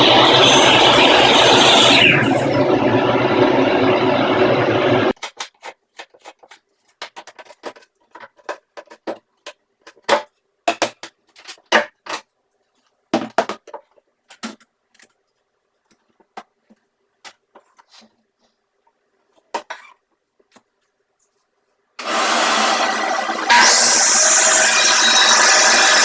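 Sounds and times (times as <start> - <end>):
hard objects clicking and knocking: 5.1 - 12.4.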